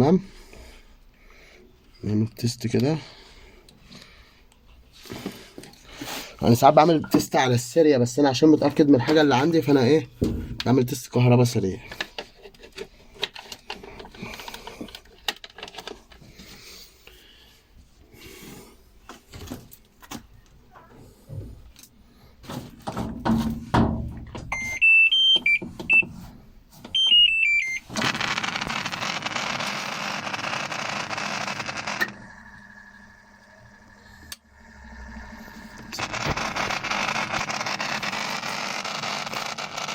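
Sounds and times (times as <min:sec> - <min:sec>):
electronic beep melodies: 0:27.0 - 0:27.8
washing machine hum: 0:29.8 - 0:38.1.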